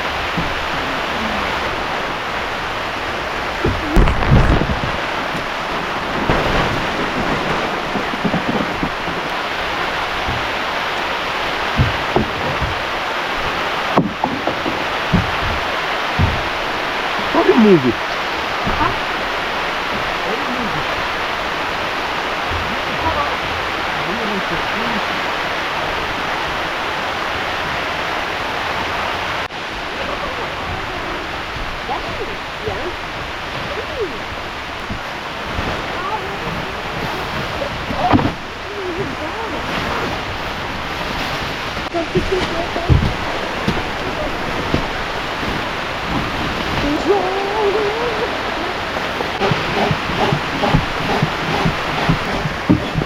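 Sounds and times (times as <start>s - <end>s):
heavy rain: 0.0s - 53.0s
soft low thumps: 11.6s - 18.0s, 41.9s - 47.5s, 49.4s - 53.0s.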